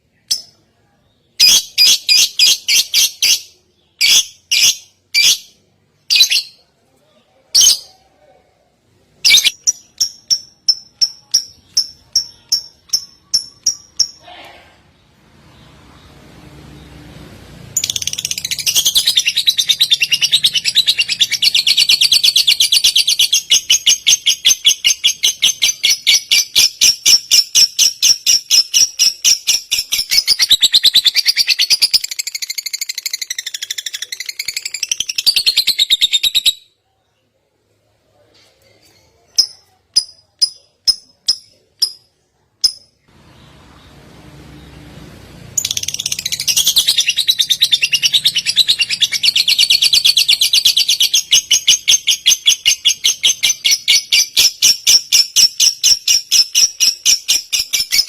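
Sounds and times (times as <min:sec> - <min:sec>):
songbird fast trill: 0:09.3 - 0:14.4.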